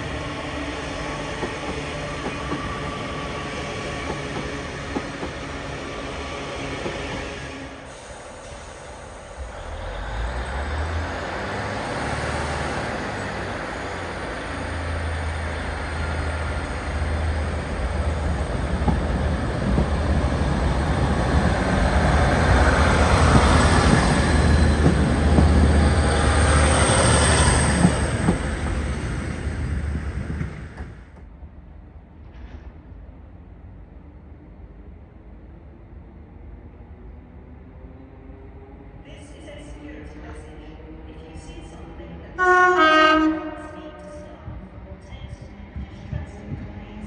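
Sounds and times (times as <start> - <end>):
train wheels rumbling on rails: 0.0 - 33.8, 43.2 - 47.0.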